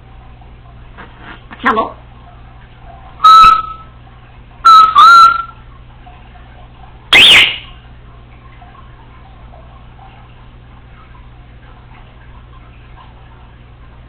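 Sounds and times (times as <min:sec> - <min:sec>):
parrot whistling: 0:03.2 - 0:03.9, 0:04.7 - 0:05.6, 0:07.1 - 0:07.7.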